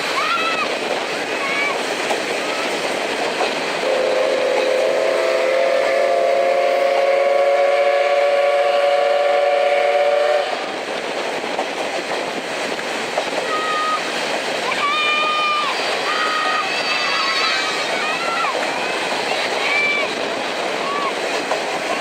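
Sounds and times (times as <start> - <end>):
train running on rails: 0.0 - 22.0
steam locomotive whistle: 3.8 - 10.7.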